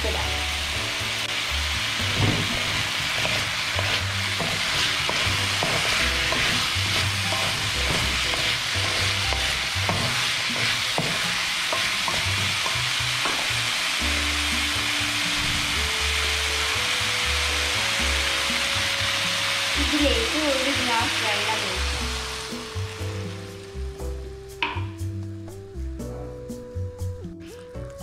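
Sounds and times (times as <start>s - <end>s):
food sizzling in oil: 0.0s - 25.1s
wooden spatula scraping wok: 1.3s - 13.8s
spatula knocking on pan: 2.1s - 13.5s, 24.6s - 24.9s.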